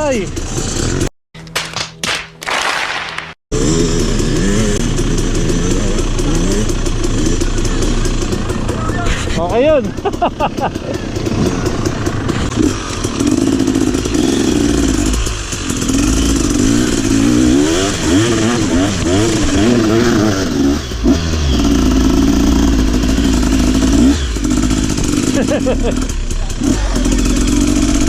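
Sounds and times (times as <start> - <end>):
motorcycle engine revving: 0.0 - 1.1, 3.5 - 28.0.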